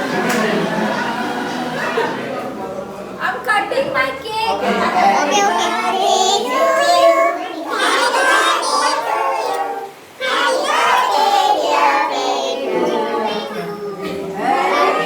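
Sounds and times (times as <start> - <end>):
group of people singing: 4.6 - 15.0.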